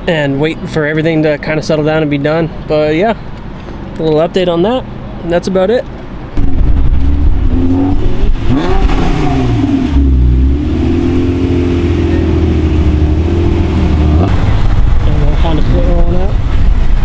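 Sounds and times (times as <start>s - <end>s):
car engine revving: 6.4s - 17.0s.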